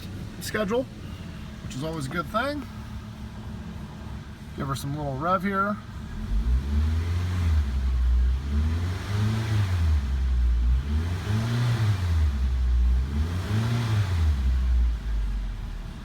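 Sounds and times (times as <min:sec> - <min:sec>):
car engine revving in blips: 0:06.0 - 0:16.0.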